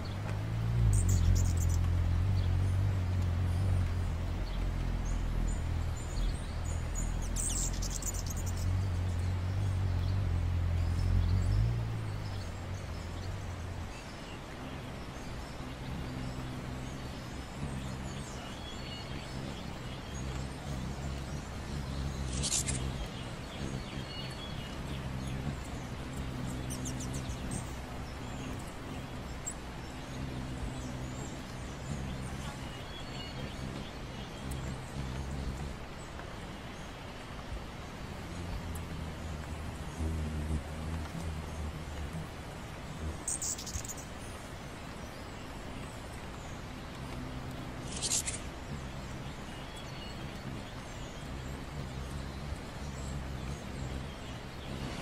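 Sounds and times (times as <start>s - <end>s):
birds chirping: 0.0s - 55.0s
steady low hum: 0.0s - 55.0s.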